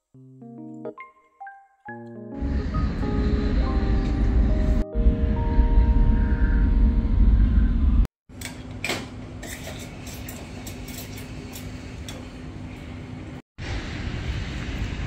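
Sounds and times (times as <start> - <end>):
train rumbling: 2.4 - 8.1, 13.0 - 15.0
train whining tones: 2.4 - 8.1.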